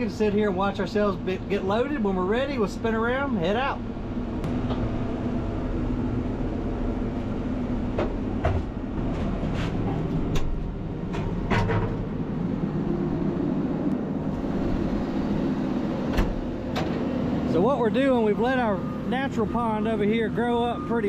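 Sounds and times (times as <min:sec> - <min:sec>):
truck engine running: 0:00.0 - 0:21.0
sharp knocks and clanks: 0:07.9 - 0:12.1, 0:16.1 - 0:17.1.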